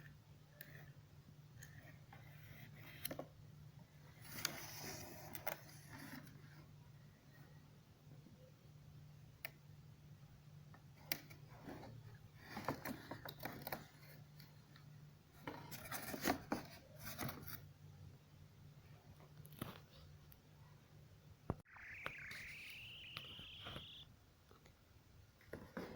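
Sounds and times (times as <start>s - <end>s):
low hum: 21.7s - 24.0s.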